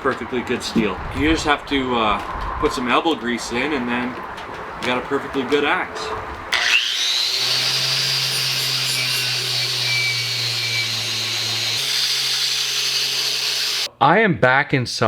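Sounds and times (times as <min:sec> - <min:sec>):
angle grinder whining: 0:06.5 - 0:13.9.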